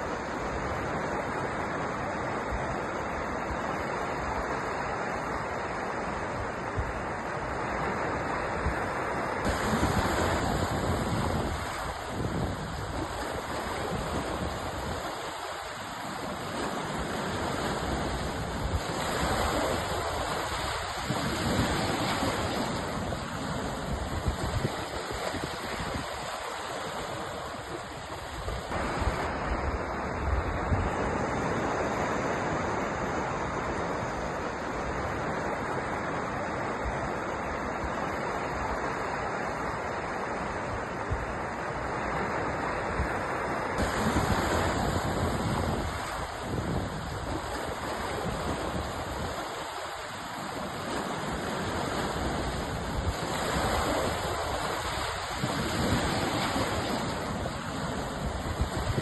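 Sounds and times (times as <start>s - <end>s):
waves breaking on the shore: 0.0s - 59.0s.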